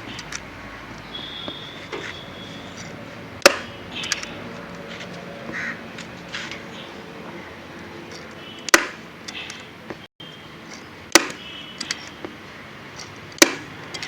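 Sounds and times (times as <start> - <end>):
sharp knocks: 3.4 - 4.2, 8.7 - 9.0, 11.1 - 11.4, 13.4 - 13.7.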